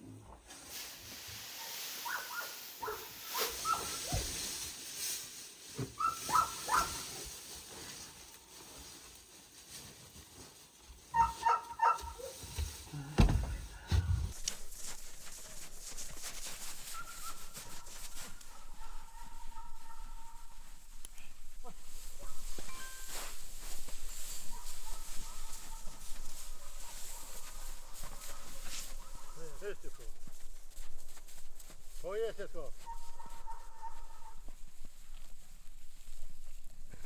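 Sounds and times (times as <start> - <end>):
farmyard animal cries: 6.0 - 7.0, 11.1 - 12.7, 16.9 - 20.9, 32.8 - 34.6.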